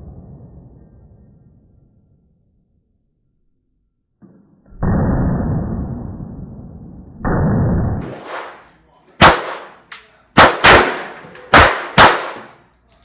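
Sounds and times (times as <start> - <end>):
pistol shots with echo: 8.1 - 12.7.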